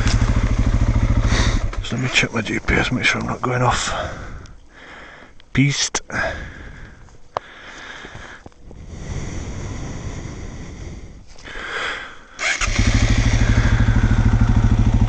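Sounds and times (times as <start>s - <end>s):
motorcycle engine idling: 0.0s - 2.3s, 12.4s - 15.0s.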